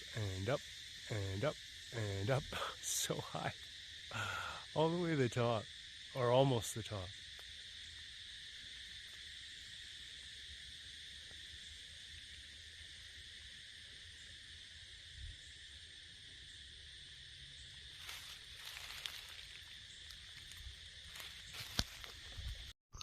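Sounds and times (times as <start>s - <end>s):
insects droning: 0.0s - 22.8s
faint rustle: 18.0s - 22.7s.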